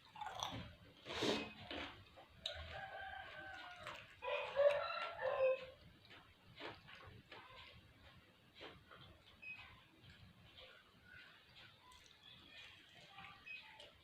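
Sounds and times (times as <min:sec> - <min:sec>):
rooster crowing: 0:02.5 - 0:05.8.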